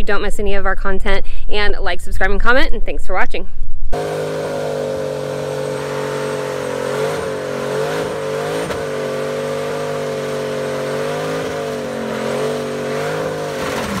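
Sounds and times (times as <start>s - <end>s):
car engine at high revs: 3.9s - 14.0s.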